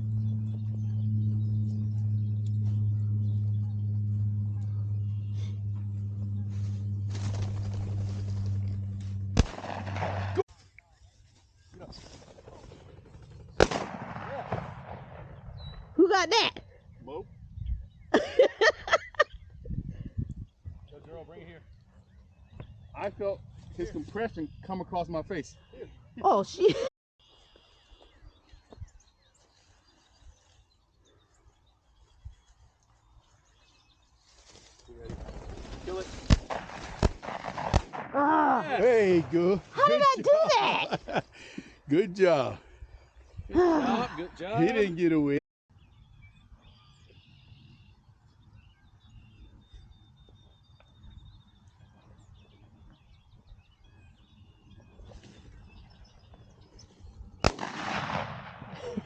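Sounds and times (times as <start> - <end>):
songbird chirps: 0.0 - 9.4, 15.4 - 19.8, 20.4 - 26.5, 27.2 - 36.2, 44.4 - 57.5
high bird trill: 0.0 - 10.4
low uneven rumble: 0.0 - 10.4
soft low thumps: 0.0 - 10.4
sudden loud burst: 9.3 - 10.4
faint bird chirps: 27.2 - 35.6, 45.7 - 57.5.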